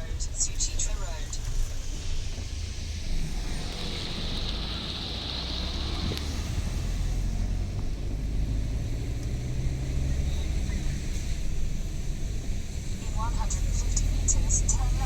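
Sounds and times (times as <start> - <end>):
vehicle engine and road noise: 0.0 - 15.0
hiss: 0.4 - 7.6.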